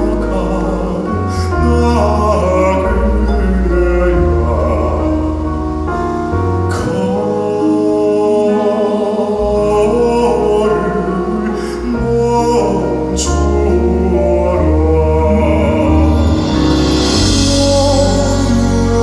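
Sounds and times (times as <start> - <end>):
male vocal group singing with band: 6.7 - 19.0.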